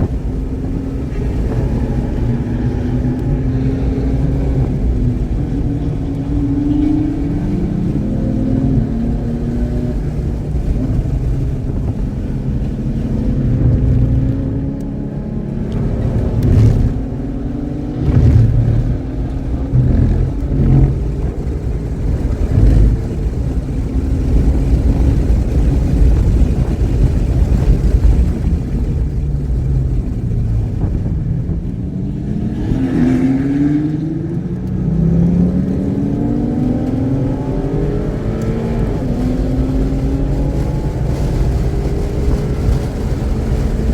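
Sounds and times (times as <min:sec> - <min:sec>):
race car engine revving: 0:00.0 - 0:43.9
loud jolts: 0:18.0 - 0:28.8.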